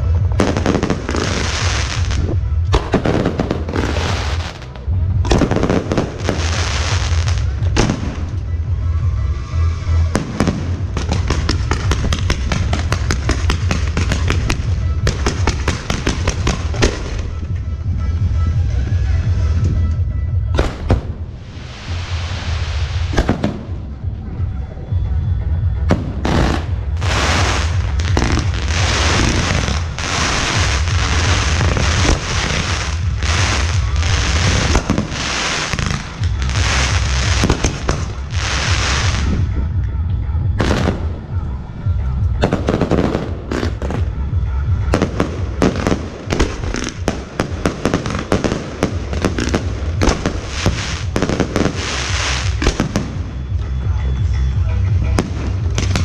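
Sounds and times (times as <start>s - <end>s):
fireworks crackling and hissing: 0.0s - 8.5s, 9.1s - 17.4s, 20.6s - 23.8s, 26.2s - 39.6s, 42.3s - 53.4s
fireworks sharp bangs: 0.0s - 8.9s, 10.0s - 17.6s, 20.5s - 24.2s, 25.8s - 39.8s, 40.5s - 53.6s, 55.0s - 56.0s
low rumble: 0.0s - 56.0s.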